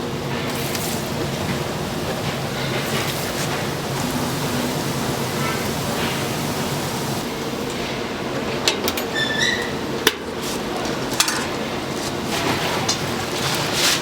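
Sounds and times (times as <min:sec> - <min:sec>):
brief high squeak: 0:09.1 - 0:09.8.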